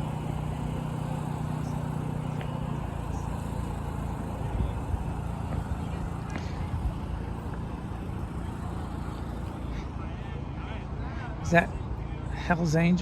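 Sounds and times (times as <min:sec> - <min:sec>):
street traffic: 0:00.0 - 0:13.0
vehicle engine humming: 0:00.0 - 0:13.0.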